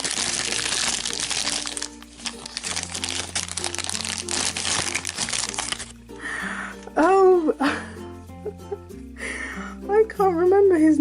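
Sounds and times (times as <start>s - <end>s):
plastic packaging crinkling: 0.0s - 6.0s
background music: 0.0s - 11.0s.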